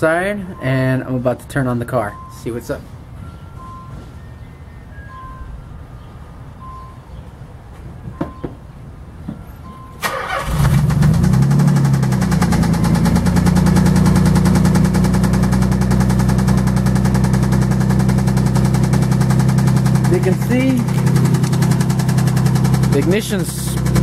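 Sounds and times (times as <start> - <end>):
ignition beeps and clicks: 2.1 - 2.5, 3.2 - 4.1, 5.0 - 5.5, 6.6 - 7.0, 9.6 - 10.4
car engine cranking and idling: 9.6 - 24.0
fast repetitive engine knocking: 11.2 - 24.0.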